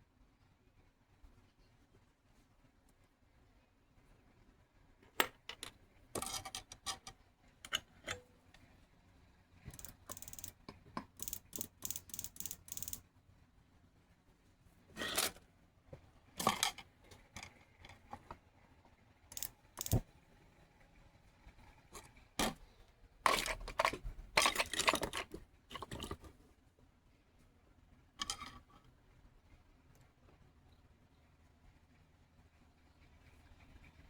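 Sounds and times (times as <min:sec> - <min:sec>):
small metal objects clicking: 0:05.5 - 0:08.2, 0:09.7 - 0:13.0, 0:19.3 - 0:20.0, 0:23.2 - 0:26.3, 0:28.2 - 0:28.7.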